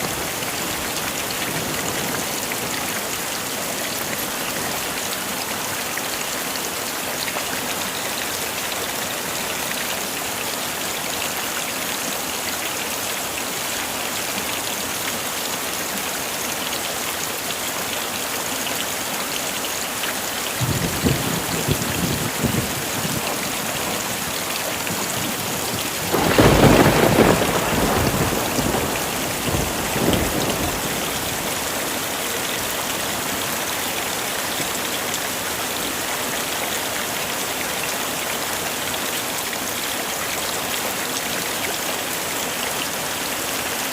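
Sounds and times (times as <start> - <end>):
heavy rain falling: 0.0 - 43.9
loud thunderclap: 20.6 - 23.4, 25.2 - 31.1
thunder rumbling: 20.6 - 31.6.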